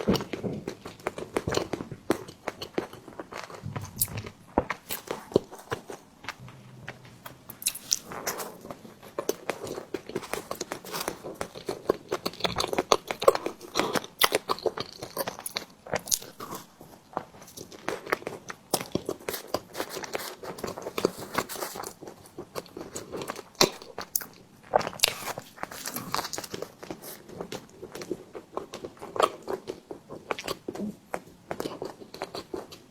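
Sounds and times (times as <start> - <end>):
mouth clicking and smacking: 0.0 - 16.6
biting and chewing: 0.0 - 32.9.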